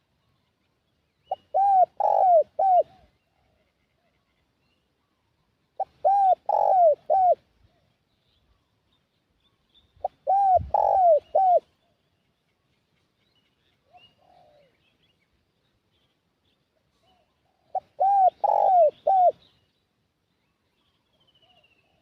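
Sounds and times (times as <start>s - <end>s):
dove cooing: 1.3s - 3.7s, 5.8s - 7.4s, 10.0s - 11.7s, 13.9s - 14.8s, 17.0s - 19.5s.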